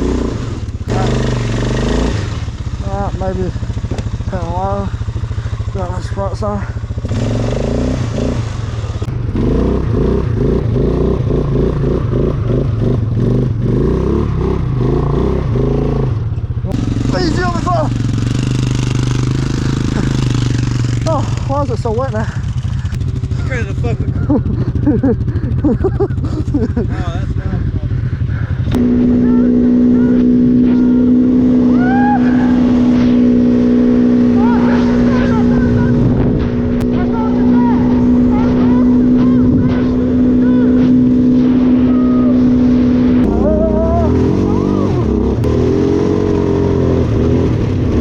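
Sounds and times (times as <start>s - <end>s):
engine revving: 0.0s - 48.0s.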